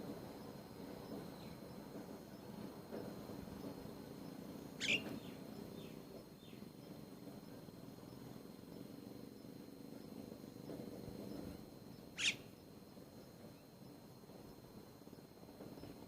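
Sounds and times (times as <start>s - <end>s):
low background noise: 0.0s - 16.0s
bird falling call: 4.8s - 5.1s.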